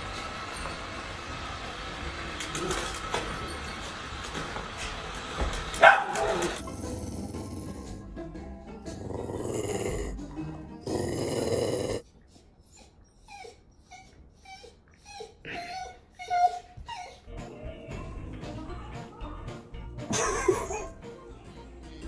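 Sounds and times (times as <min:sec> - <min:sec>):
dog whimpering: 0:10.9 - 0:17.4.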